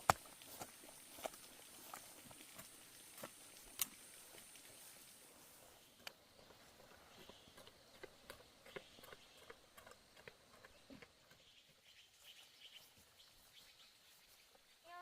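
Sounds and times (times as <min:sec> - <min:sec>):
faint clicks and ticks: 0:01.2 - 0:04.8, 0:06.0 - 0:06.2.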